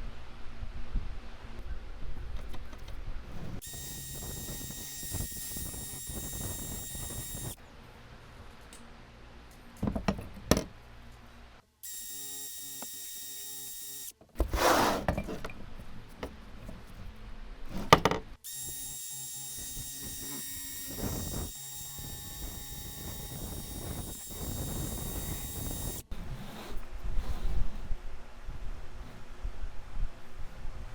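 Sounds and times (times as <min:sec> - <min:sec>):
metal parts knocking and clanking: 0:09.8 - 0:10.8.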